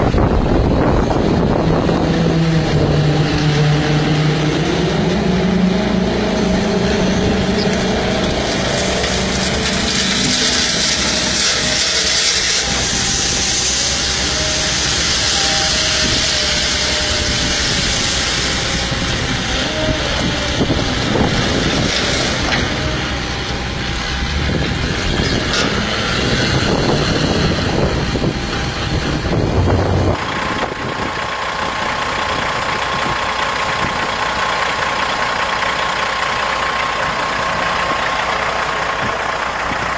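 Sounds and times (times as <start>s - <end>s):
dump truck engine running: 0.0s - 39.9s
steady whine: 0.0s - 39.9s.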